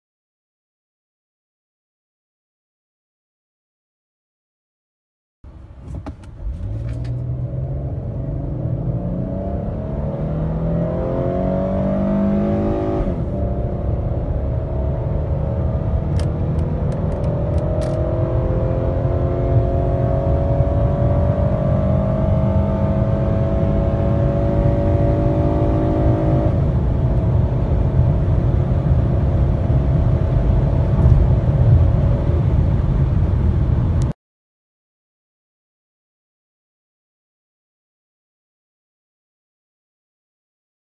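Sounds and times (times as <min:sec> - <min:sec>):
car engine accelerating: 0:05.5 - 0:34.1.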